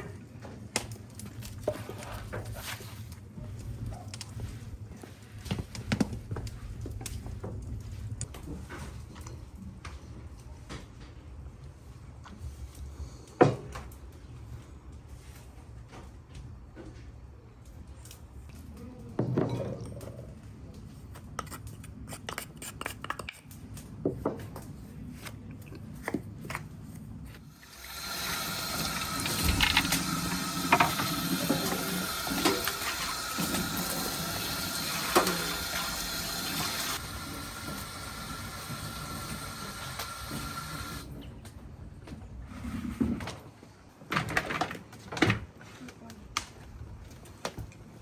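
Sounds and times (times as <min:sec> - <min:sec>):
water running: 0:27.4 - 0:41.1.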